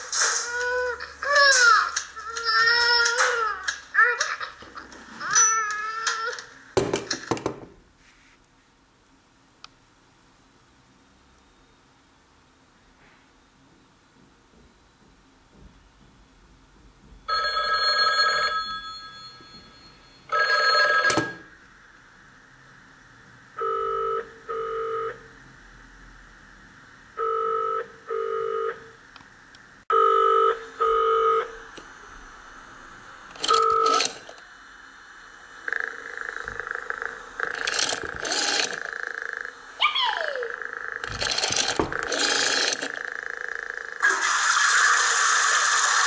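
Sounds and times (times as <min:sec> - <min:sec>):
loud telephone ringing: 0:17.3 - 0:21.5, 0:23.6 - 0:25.2, 0:27.2 - 0:28.8, 0:29.9 - 0:31.5, 0:33.4 - 0:34.4, 0:35.7 - 0:39.5, 0:40.6 - 0:44.1
two-beat telephone ring tone: 0:17.3 - 0:21.5, 0:23.6 - 0:25.2, 0:27.2 - 0:28.8, 0:29.9 - 0:31.5, 0:33.4 - 0:34.2.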